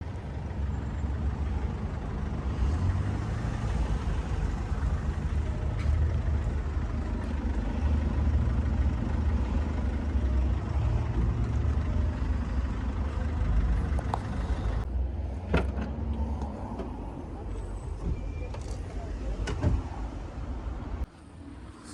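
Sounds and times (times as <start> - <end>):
vehicle engine idling: 0.0 - 21.2.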